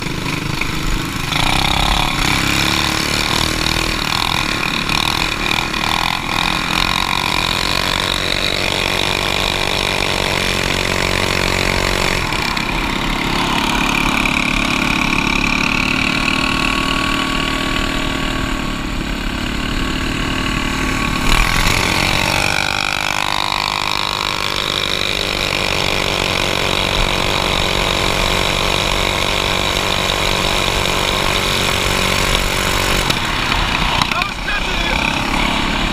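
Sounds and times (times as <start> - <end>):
minibike engine revving: 0.0 - 35.9.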